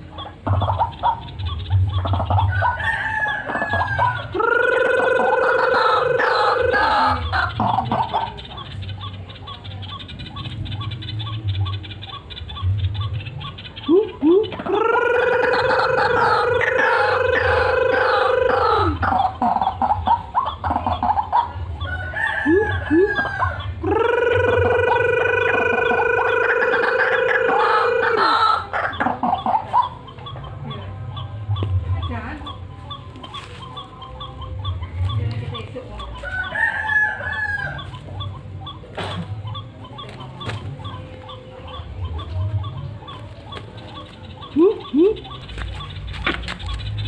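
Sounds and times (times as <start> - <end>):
bird clucking calls: 0.0 - 47.0
bird trilling call: 0.0 - 47.0
bird deep booming calls: 38.2 - 47.0.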